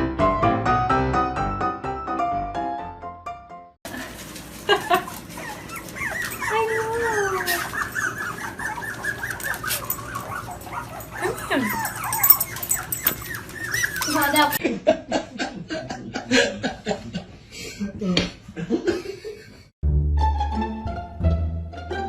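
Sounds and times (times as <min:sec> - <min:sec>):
dog whimpering and whining: 0:05.0 - 0:14.6.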